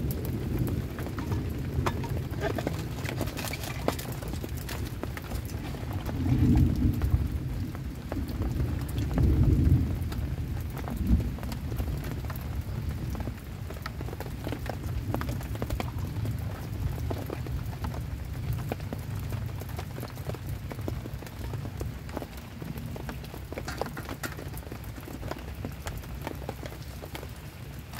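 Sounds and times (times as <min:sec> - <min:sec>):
thunder rumbling: 0:00.0 - 0:13.4
heavy rain on shelter: 0:00.0 - 0:27.9.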